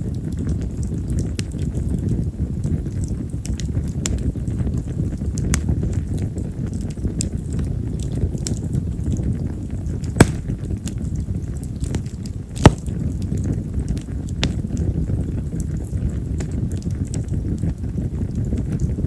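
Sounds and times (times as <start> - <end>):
campfire crackling: 0.0 - 19.0
steady low rumble: 10.1 - 11.2
sharp loud wood snaps: 10.2 - 10.6, 12.6 - 13.0.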